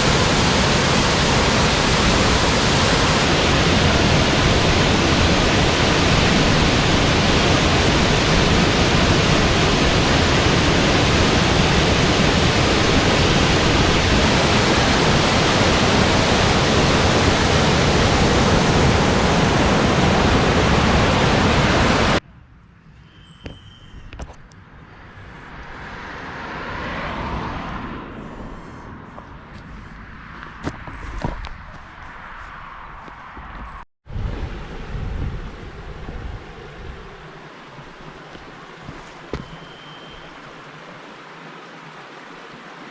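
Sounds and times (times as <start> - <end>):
waterfall rushing: 0.0 - 22.2, 36.4 - 42.9.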